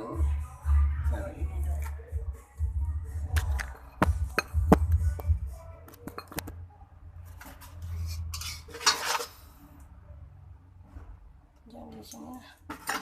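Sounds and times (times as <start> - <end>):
dishes and utensils clinking: 3.5 - 5.4, 6.0 - 6.5, 7.4 - 9.4, 12.7 - 13.0.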